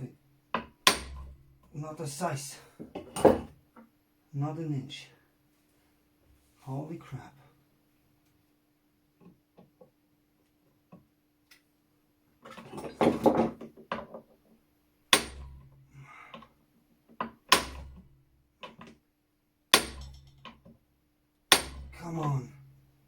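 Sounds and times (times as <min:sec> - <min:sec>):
sharp knocks with dull thud: 0:00.6 - 0:01.4, 0:15.2 - 0:15.6, 0:17.5 - 0:18.0, 0:19.8 - 0:20.3, 0:21.5 - 0:22.0
metal tools clinking: 0:12.5 - 0:13.4.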